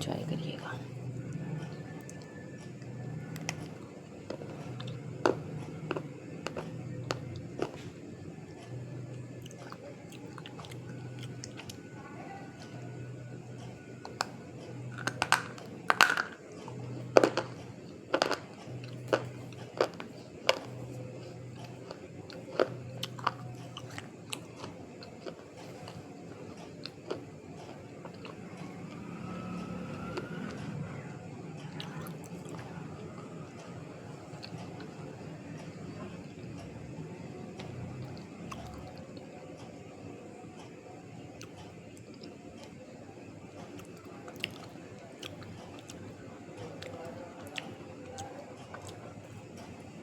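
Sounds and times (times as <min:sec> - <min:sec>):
crunchy chewing of clay: 0:00.3 - 0:11.9, 0:12.6 - 0:30.8, 0:43.6 - 0:49.8.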